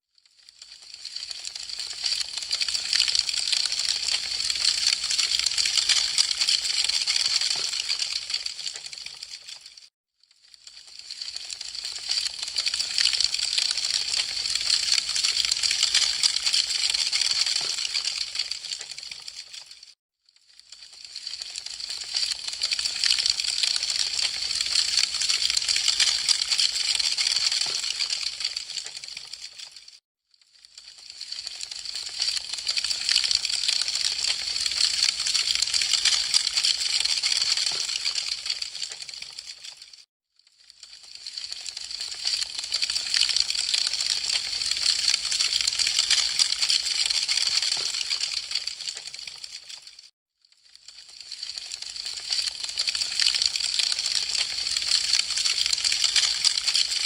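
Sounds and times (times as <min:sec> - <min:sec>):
wood fire crackling and popping: 0:00.8 - 0:09.6, 0:10.7 - 0:19.9, 0:20.8 - 0:29.7, 0:31.0 - 0:39.3, 0:41.3 - 0:42.4, 0:43.0 - 0:49.8.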